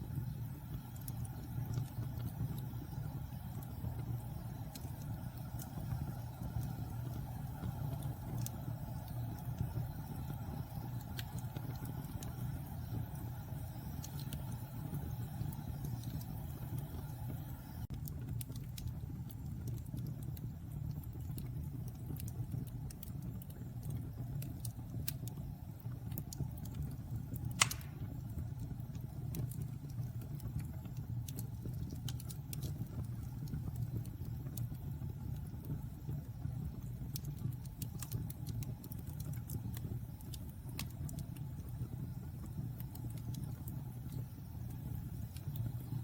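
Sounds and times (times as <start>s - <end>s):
fire crackling: 0.0s - 46.0s
wood fire burning: 0.0s - 46.0s
sharp loud pop: 27.6s - 28.0s.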